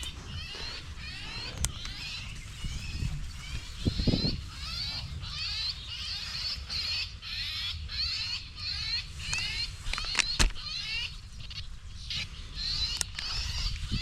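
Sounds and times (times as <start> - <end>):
bird distress call screeches: 0.0 - 14.0
sharp clicks: 9.3 - 10.6.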